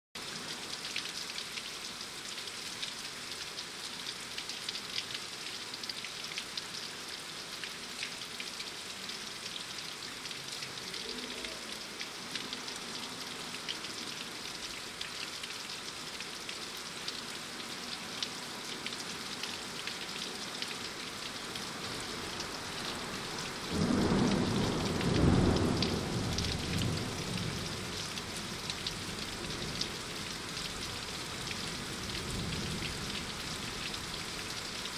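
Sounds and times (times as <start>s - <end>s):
steady rain: 0.2s - 34.9s.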